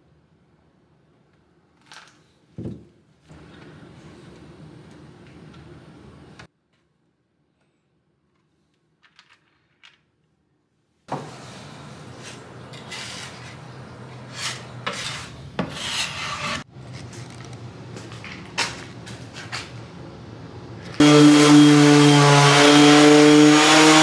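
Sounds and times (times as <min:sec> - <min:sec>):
scraping against wood: 0:11.1 - 0:19.7.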